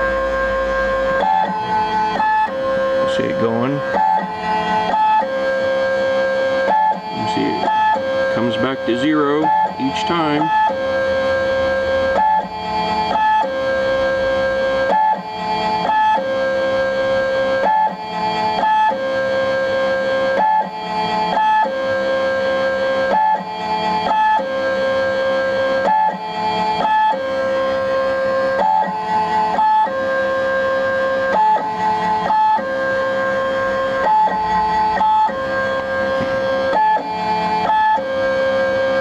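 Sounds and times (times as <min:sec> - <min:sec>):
stepper motors singing: 0:00.2 - 0:10.8.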